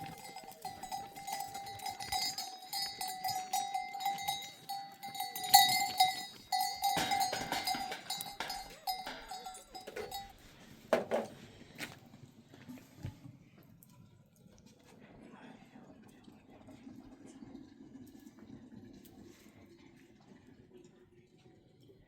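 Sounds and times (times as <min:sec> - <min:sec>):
metal bells jangling: 0:00.0 - 0:10.6.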